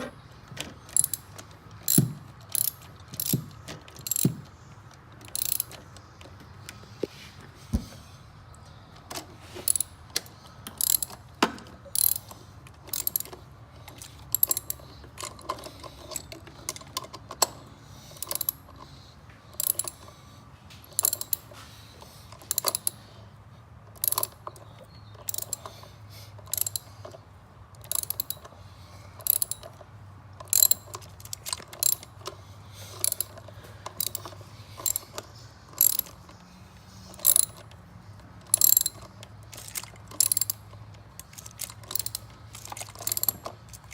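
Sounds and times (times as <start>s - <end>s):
ratchet wrench clicking: 0.9s - 4.5s, 5.2s - 5.8s, 9.7s - 11.3s, 11.9s - 13.4s, 14.0s - 18.8s, 19.6s - 20.1s, 20.9s - 21.5s, 22.4s - 23.0s, 24.0s - 24.5s, 25.2s - 25.8s, 26.4s - 27.0s, 27.7s - 28.5s, 29.2s - 29.8s, 30.4s - 32.3s, 33.0s - 36.4s, 37.0s - 37.8s, 38.4s - 43.9s.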